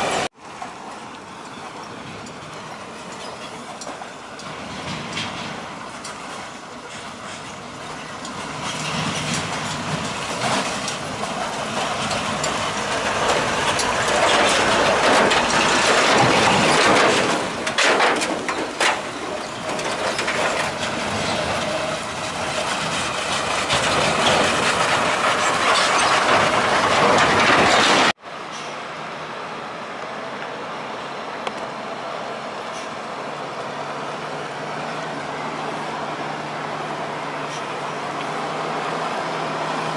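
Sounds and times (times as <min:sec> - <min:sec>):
heavy truck passing: 0:00.0 - 0:39.9.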